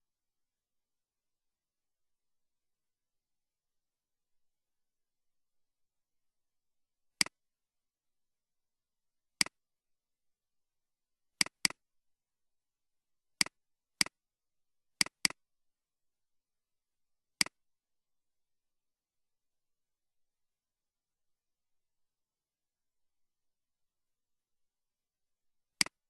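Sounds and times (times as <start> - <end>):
computer mouse button clicking: 15.0 - 15.4.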